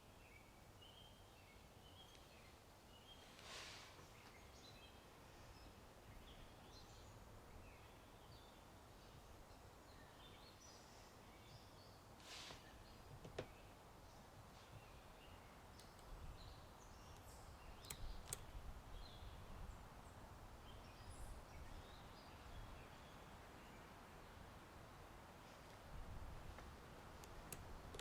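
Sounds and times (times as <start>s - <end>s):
low steady background hiss: 0.0s - 28.0s
sharp click: 17.1s - 18.5s.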